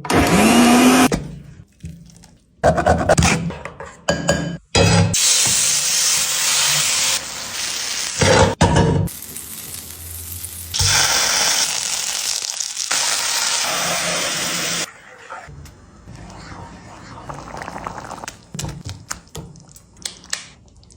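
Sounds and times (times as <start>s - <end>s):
food sizzling in oil: 5.2s - 14.9s.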